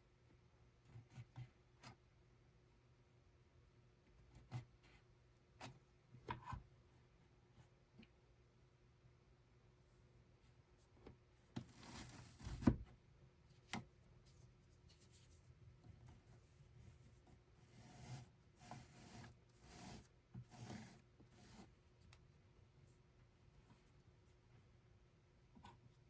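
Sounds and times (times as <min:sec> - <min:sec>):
soft rubbing and rustling strokes: 0:09.8 - 0:12.8, 0:13.4 - 0:24.8.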